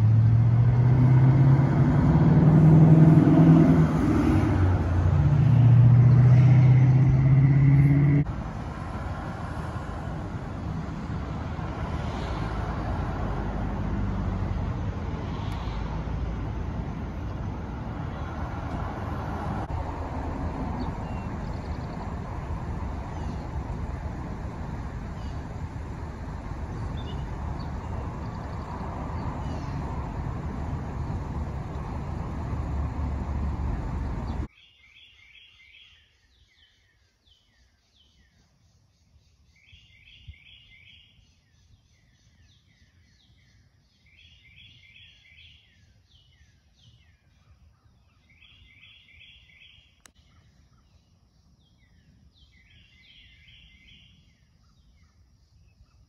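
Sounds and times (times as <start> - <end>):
songbird singing: 0.0 - 8.3, 12.0 - 56.0
loud low rushing noise: 0.0 - 34.5.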